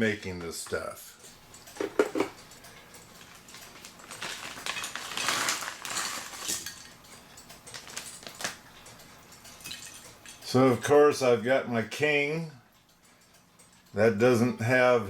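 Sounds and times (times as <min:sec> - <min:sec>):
small hard parts clicking: 0:00.4 - 0:10.5
parts rattling and rustling: 0:01.7 - 0:02.4, 0:03.1 - 0:08.6.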